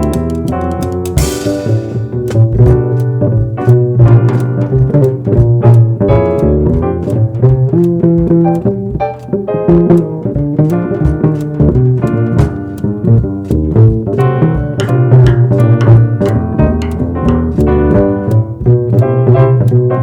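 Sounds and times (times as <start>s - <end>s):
plucked upright bass: 0.0s - 20.0s
drums and cymbals: 0.2s - 2.8s.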